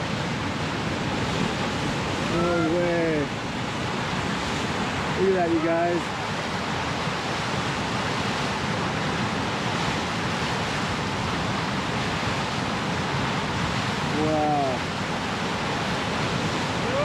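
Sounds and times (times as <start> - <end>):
creek water rushing: 0.0 - 17.0
surf: 0.0 - 17.0.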